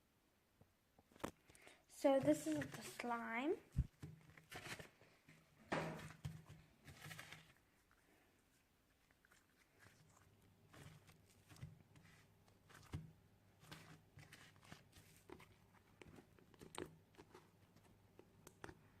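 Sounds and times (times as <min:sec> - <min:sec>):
slime squished by hand: 0:08.9 - 0:19.0.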